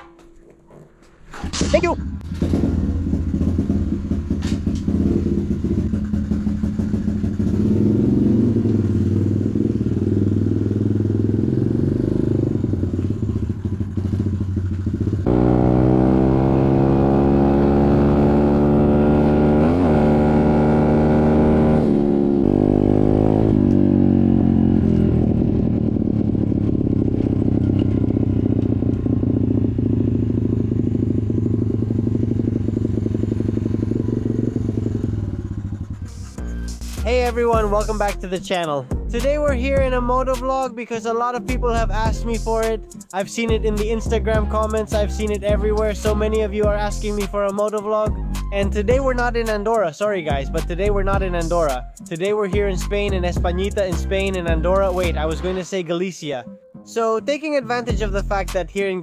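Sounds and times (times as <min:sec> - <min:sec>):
motorcycle engine revving: 0:00.9 - 0:38.3.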